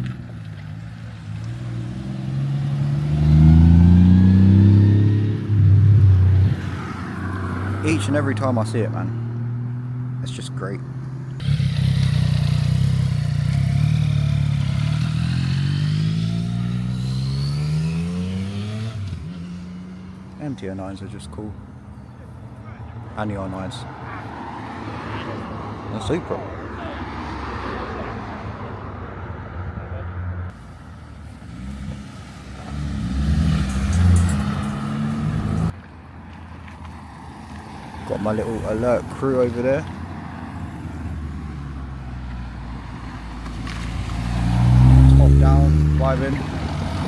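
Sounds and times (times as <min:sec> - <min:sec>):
motorcycle engine accelerating: 0:01.4 - 0:08.1, 0:11.4 - 0:20.3, 0:31.4 - 0:35.7, 0:43.6 - 0:47.0.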